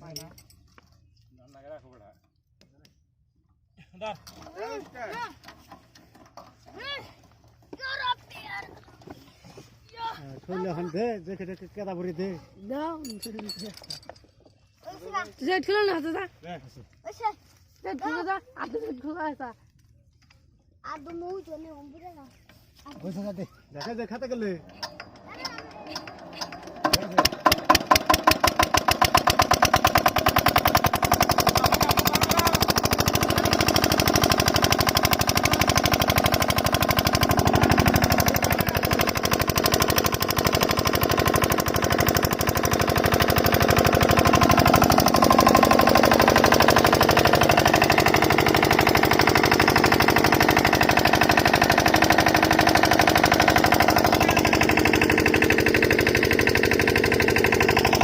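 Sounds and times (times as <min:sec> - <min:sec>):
diesel pump engine chugging: 0:23.8 - 0:58.0.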